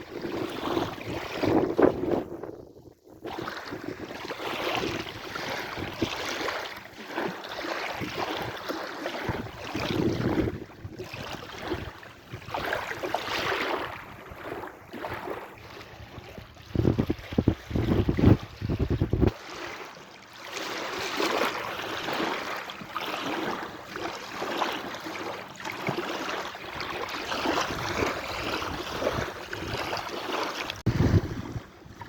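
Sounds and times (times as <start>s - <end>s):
wind buffeting microphone: 0.0s - 6.2s, 9.2s - 14.6s, 15.2s - 19.4s, 26.8s - 30.1s, 30.7s - 32.0s
sea waves washing in: 3.2s - 32.0s.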